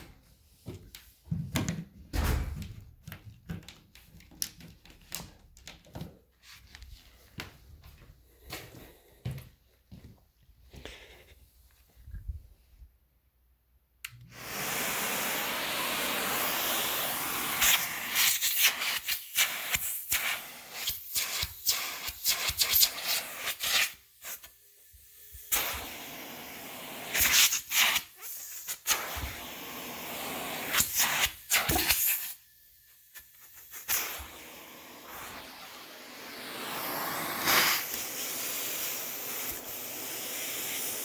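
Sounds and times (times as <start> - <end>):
vacuum suction rushing air: 14.3 - 41.0.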